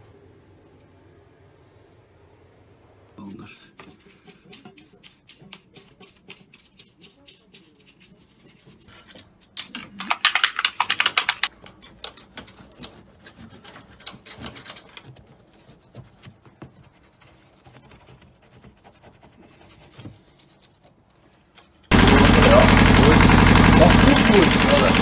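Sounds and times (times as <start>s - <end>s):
rapid scratching and rubbing: 3.2s - 9.1s, 10.0s - 22.2s.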